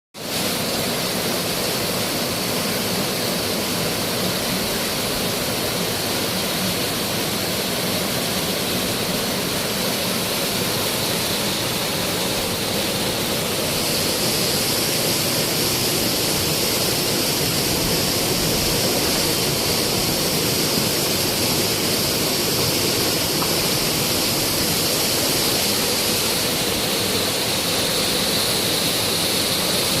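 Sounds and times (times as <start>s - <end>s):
waterfall rushing: 0.2s - 30.0s.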